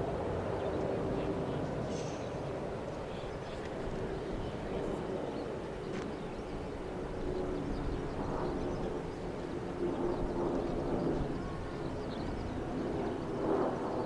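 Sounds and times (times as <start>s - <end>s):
distant jet aircraft rumble: 0.0s - 14.0s.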